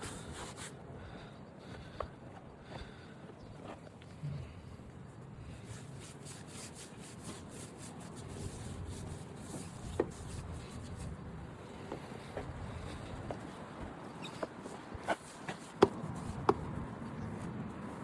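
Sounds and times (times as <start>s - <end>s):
brush scrubbing: 5.7s - 11.1s.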